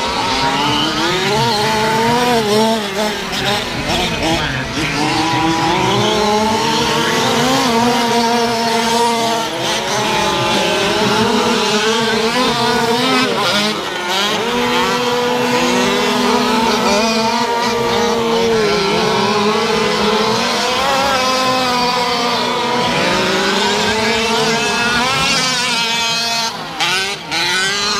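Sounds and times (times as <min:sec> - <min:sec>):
small two-stroke engines racing: 0:00.0 - 0:27.9.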